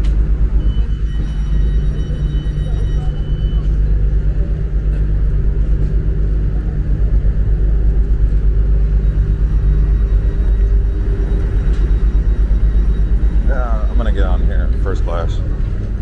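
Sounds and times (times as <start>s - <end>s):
low hum: 0.0s - 16.0s
train rumbling: 0.0s - 16.0s.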